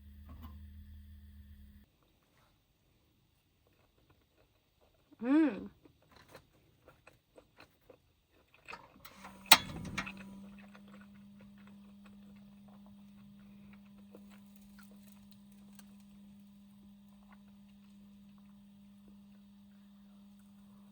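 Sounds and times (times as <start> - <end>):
low electric hum: 0.0 - 1.8, 9.0 - 20.9
light handling clicks and knocks: 9.1 - 10.3
switch click: 9.1 - 10.3.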